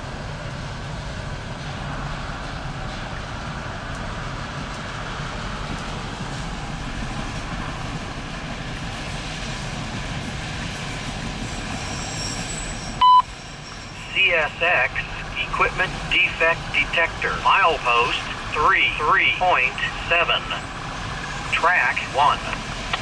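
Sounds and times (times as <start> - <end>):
freight train wheels rumbling: 0.0 - 23.0
scanner radio beep: 13.0 - 13.3, 14.0 - 20.7.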